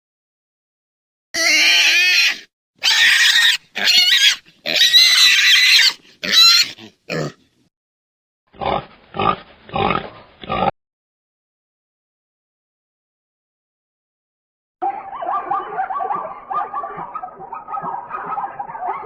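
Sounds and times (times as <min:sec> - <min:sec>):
pig squealing: 0:01.4 - 0:07.4, 0:08.6 - 0:10.7
pig grunting: 0:05.8 - 0:07.5, 0:08.5 - 0:10.7.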